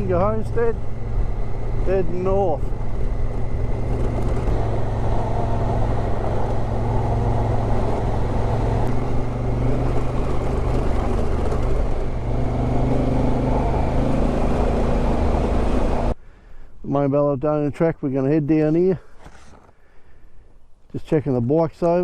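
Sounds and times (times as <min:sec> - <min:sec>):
motorcycle engine running: 0:00.0 - 0:16.1
wind rushing: 0:00.8 - 0:16.1.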